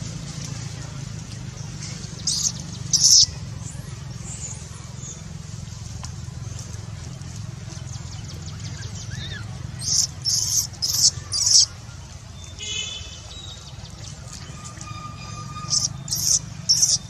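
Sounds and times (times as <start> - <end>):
high-pitched animal squeaks: 9.2 - 11.7, 14.5 - 17.0.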